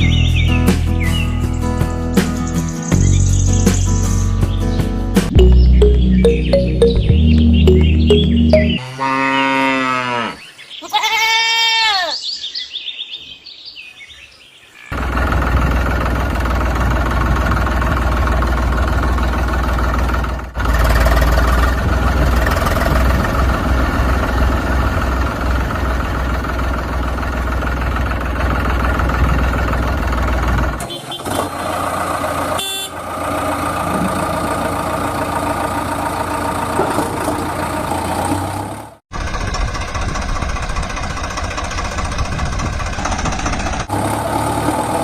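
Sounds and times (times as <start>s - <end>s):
bleating animal calls: 8.8s - 12.2s
tractor engine rumble: 15.0s - 45.0s.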